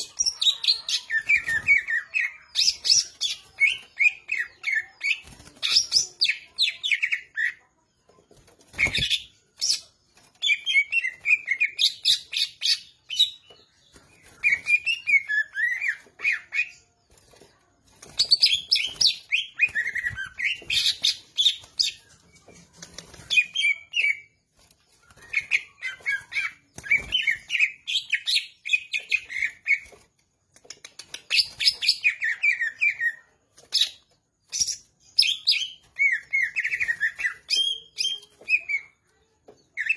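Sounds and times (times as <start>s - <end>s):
bird singing chirps and whistles: 8.7s - 16.8s, 18.1s - 24.3s, 24.9s - 30.0s, 31.3s - 38.9s.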